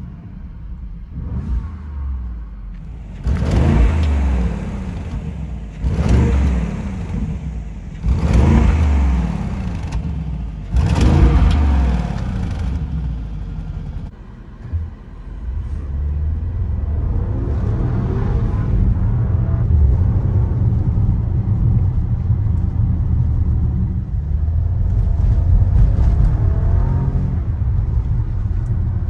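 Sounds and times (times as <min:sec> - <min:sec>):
car engine revving and idling: 0:00.0 - 0:29.0.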